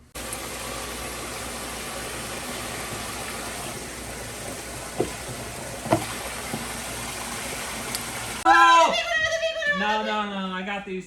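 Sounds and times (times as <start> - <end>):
toilet flushing: 0.0 - 8.4
pipe gurgles and knocks: 3.2 - 8.2.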